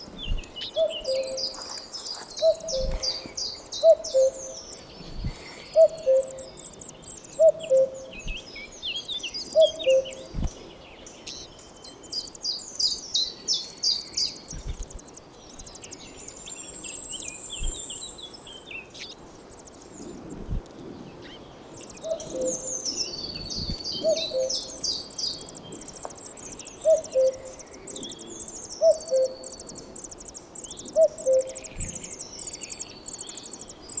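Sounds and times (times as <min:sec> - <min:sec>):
nestlings begging chirps: 0:00.3 - 0:10.4, 0:11.2 - 0:20.4, 0:21.2 - 0:34.0
cuckoo calling: 0:00.6 - 0:08.4, 0:09.5 - 0:10.3, 0:22.0 - 0:23.1, 0:23.9 - 0:34.0.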